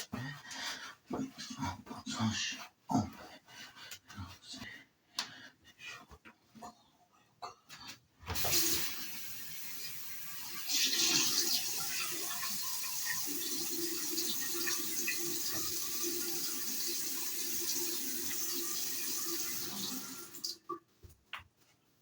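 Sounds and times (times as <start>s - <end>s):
tap water running into sink: 8.4s - 20.6s.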